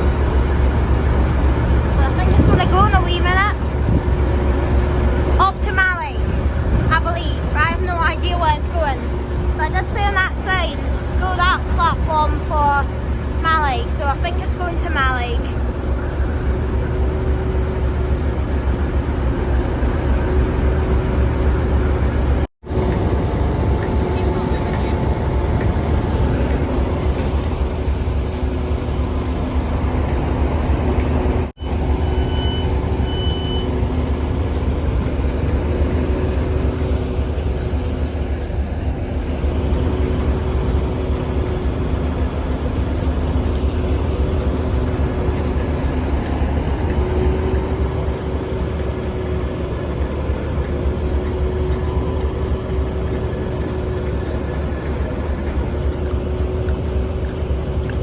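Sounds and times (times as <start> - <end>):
diesel train engine idling: 0.0 - 58.0
short high beeps: 31.6 - 33.7.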